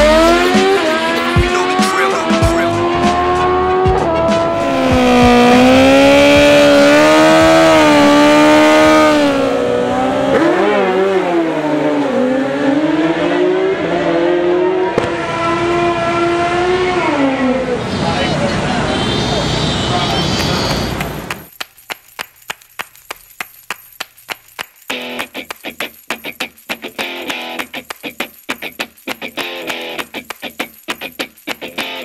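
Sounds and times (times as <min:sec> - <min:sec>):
motorcycle engine revving high: 0:00.0 - 0:18.4.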